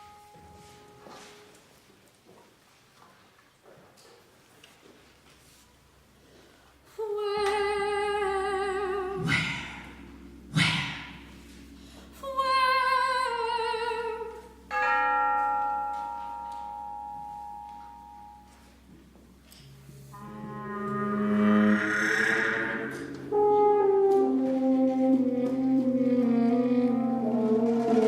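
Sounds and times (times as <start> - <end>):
soprano singing: 6.9 - 9.9, 12.2 - 14.7
percussion strikes: 9.1 - 13.0.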